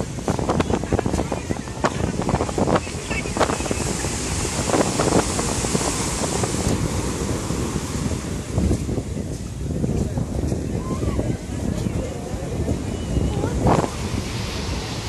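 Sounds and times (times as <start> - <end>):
rushing water: 0.0 - 15.0
wind buffeting microphone: 0.0 - 15.0.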